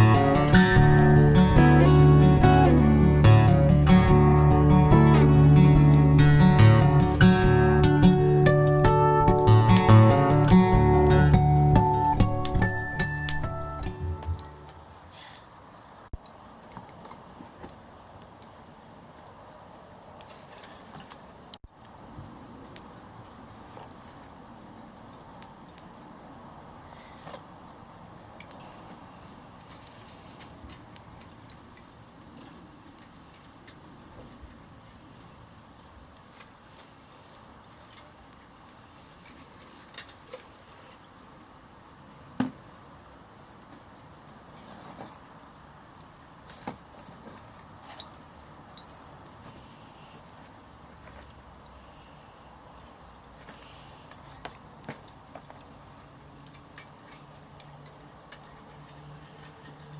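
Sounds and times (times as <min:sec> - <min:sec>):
wood fire crackling: 0:00.0 - 0:59.9
low hiss of burning: 0:14.4 - 0:59.9.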